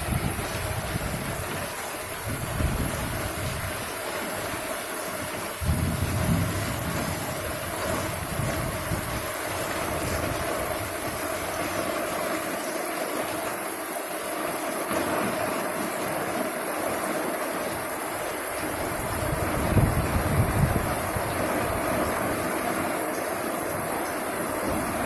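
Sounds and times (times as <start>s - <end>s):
wind buffeting microphone: 0.0s - 3.9s, 5.6s - 11.7s, 18.6s - 22.4s
strong gusty wind: 0.0s - 12.2s, 17.7s - 25.0s.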